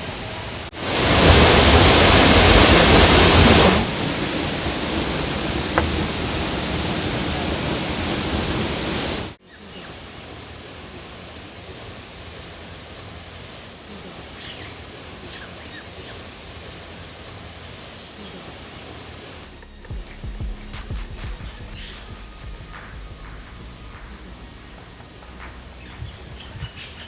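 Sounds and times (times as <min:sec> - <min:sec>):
waterfall rushing: 0:00.0 - 0:09.4.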